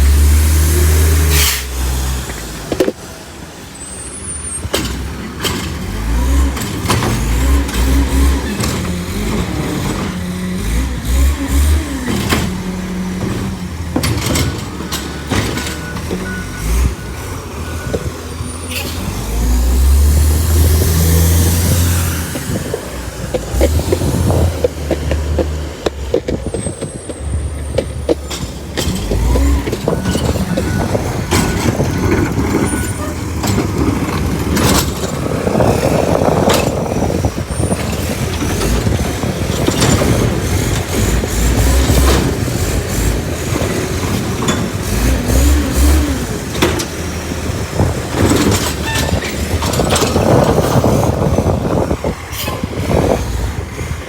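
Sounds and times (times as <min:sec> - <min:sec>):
garbage truck engine running: 0:00.0 - 0:54.0
sharp knocks and clatter: 0:11.1 - 0:16.8, 0:20.2 - 0:51.8.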